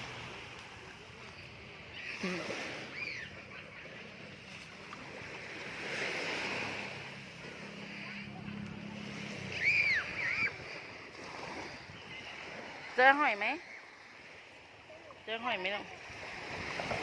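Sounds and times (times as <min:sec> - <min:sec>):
sea waves washing ashore: 0:00.0 - 0:17.0
children's high cries: 0:09.5 - 0:10.8.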